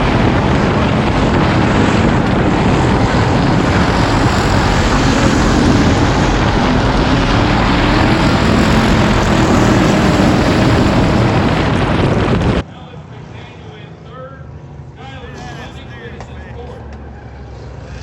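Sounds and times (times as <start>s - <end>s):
wind noise: 0.0s - 12.6s
dirt track noise: 0.0s - 18.0s
race car engine running hard: 0.0s - 18.0s.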